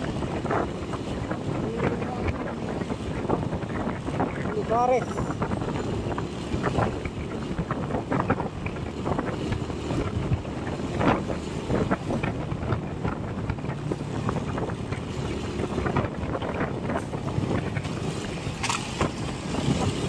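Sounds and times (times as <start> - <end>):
vehicle engine and road noise: 0.0 - 20.0
wind buffeting microphone: 0.0 - 20.0.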